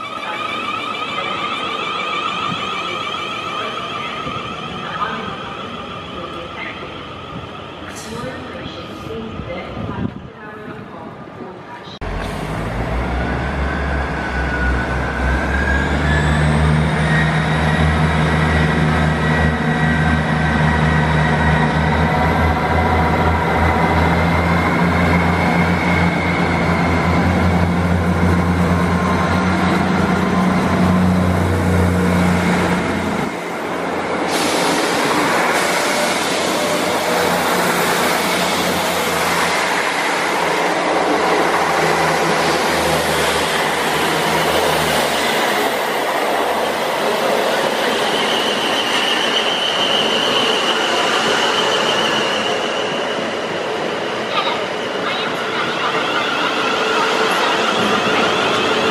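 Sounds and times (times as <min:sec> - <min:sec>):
train engine drone: 0:00.0 - 0:58.9
train rushing hiss on track: 0:12.0 - 0:58.9.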